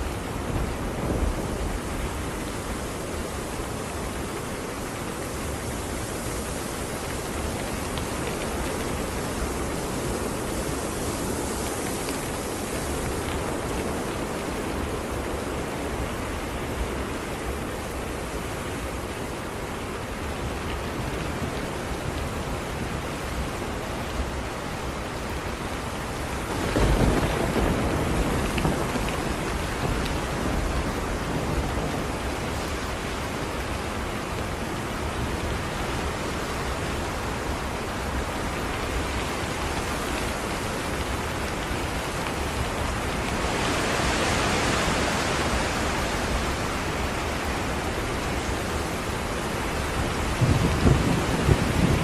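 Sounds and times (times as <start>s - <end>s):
steady rain: 0.0s - 52.0s
low rumble of thunder: 26.5s - 33.1s, 50.1s - 52.0s.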